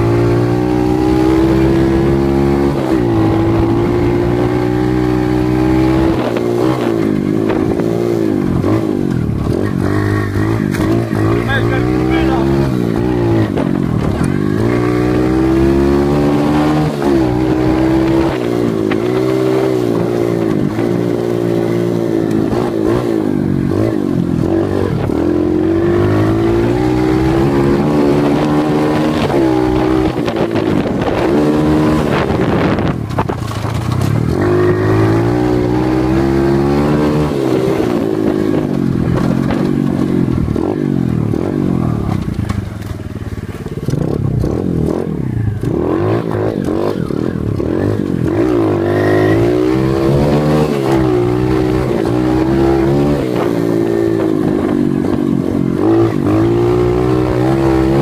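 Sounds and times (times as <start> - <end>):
dirt bike engine revving: 0.0 - 58.0
bike knocks and rattles: 32.9 - 34.4, 38.5 - 48.6.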